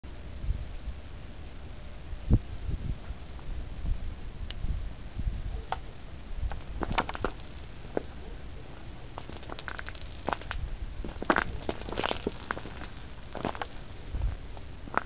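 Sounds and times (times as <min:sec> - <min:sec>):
low rumble: 0:00.0 - 0:15.0
ice clicking and crackling: 0:06.5 - 0:08.1, 0:09.2 - 0:15.0.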